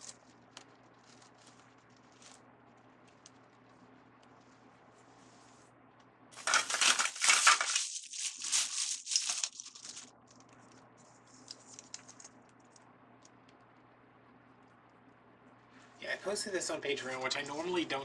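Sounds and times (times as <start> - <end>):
crinkly materials rustling: 0.0 - 5.6, 6.4 - 13.4.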